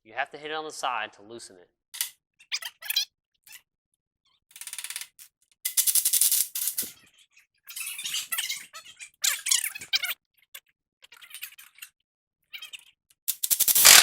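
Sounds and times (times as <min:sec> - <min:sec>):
wrench clicking and rattling: 0:04.6 - 0:06.9, 0:13.3 - 0:14.0.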